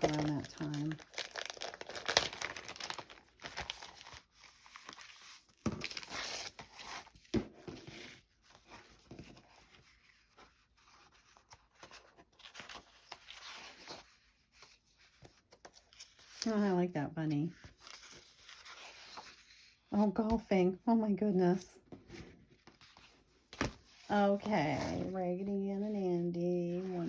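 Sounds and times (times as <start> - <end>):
paper rustling and crinkling: 0.0 - 16.6, 17.6 - 19.8.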